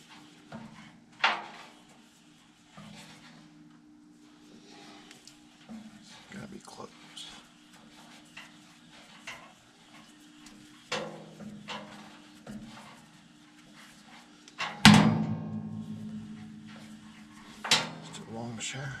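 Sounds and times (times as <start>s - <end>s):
loud metal clang: 14.9s - 16.5s.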